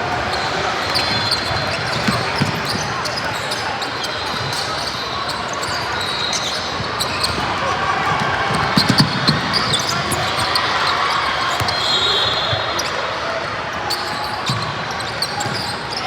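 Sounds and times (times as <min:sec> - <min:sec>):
shoe squeak: 0:00.4 - 0:07.5, 0:08.7 - 0:13.0, 0:13.9 - 0:16.0
basketball bouncing on floor: 0:08.8 - 0:09.5.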